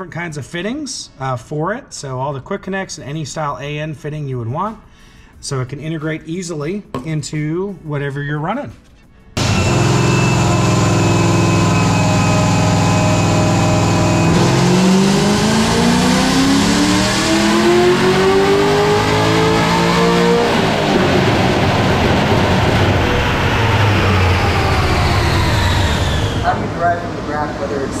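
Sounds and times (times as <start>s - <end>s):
car engine revving on dyno: 9.4s - 28.0s.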